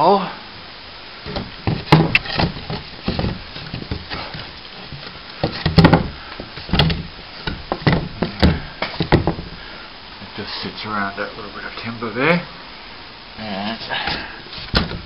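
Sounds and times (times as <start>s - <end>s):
plasterboard knocking and scraping: 1.3s - 9.6s, 14.1s - 15.0s.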